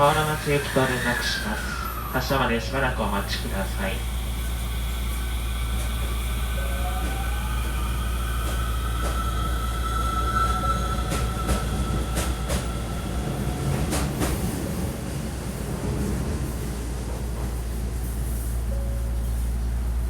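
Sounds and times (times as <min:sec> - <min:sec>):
drawn-out squealing tone: 0:00.0 - 0:14.1
train low hum: 0:00.0 - 0:20.0.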